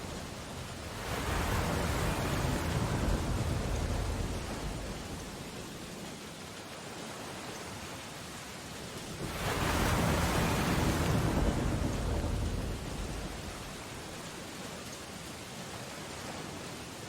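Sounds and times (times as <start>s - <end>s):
deep storm surge: 0.0s - 5.9s, 9.0s - 14.4s
rain on window glass: 0.0s - 16.8s.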